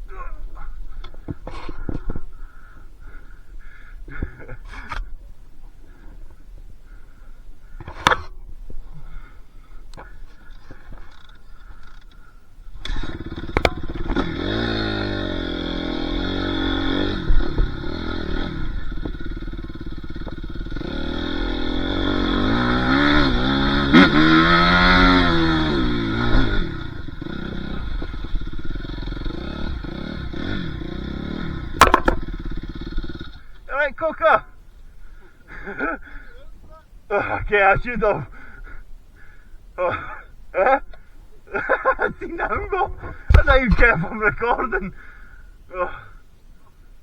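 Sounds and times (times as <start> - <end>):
dirt bike engine revving: 12.8 - 34.1.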